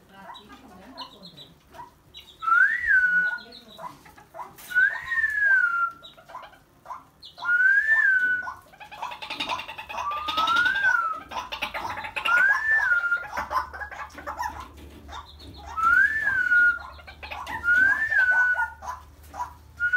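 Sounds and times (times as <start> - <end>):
bird chick whistled call: 2.2 - 3.6, 4.7 - 6.2, 7.2 - 8.6, 9.9 - 11.3, 12.2 - 13.5, 15.5 - 18.9.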